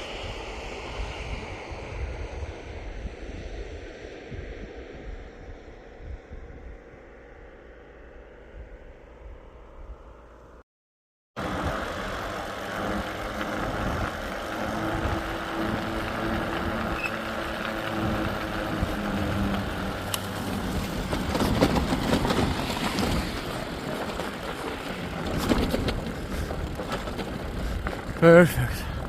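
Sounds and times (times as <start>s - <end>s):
vehicle engine hum: 11.4s - 29.0s.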